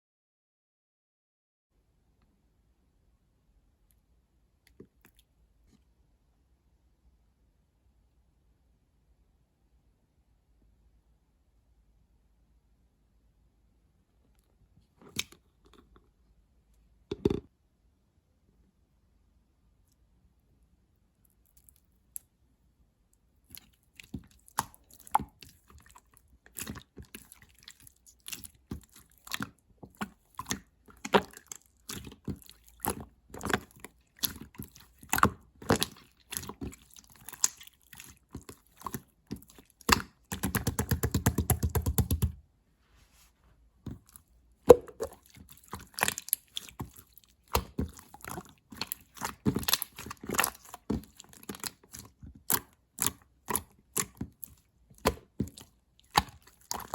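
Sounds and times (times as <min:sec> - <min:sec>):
slime crackling and popping: 0:23.6 - 0:42.2, 0:44.7 - 0:56.9.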